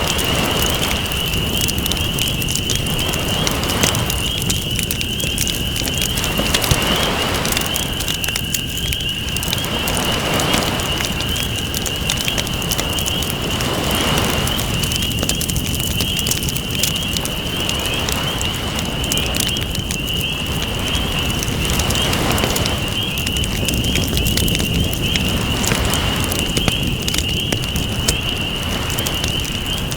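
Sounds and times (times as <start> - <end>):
campfire crackling and popping: 0.0 - 29.9
ocean waves washing in: 6.0 - 8.2, 9.5 - 11.2.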